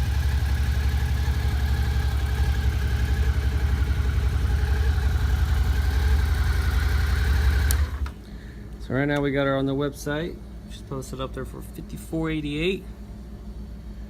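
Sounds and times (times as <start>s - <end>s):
motorcycle engine idling: 0.0s - 8.2s.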